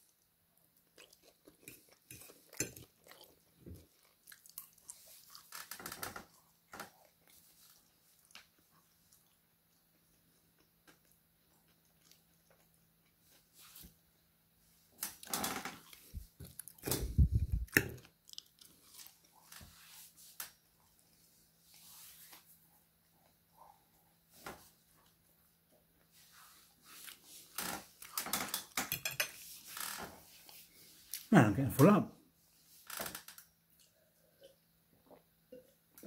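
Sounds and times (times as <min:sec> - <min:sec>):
person chewing food: 0:00.6 - 0:13.8, 0:15.2 - 0:19.8
cutlery scraping on a plate: 0:28.4 - 0:29.8.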